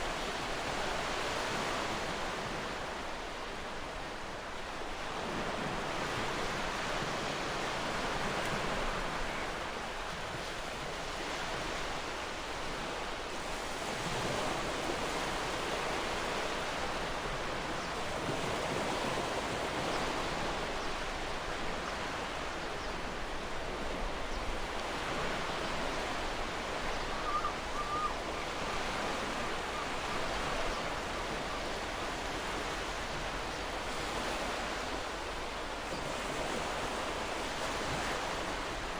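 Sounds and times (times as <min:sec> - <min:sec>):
faint bird call: 0:26.8 - 0:31.8.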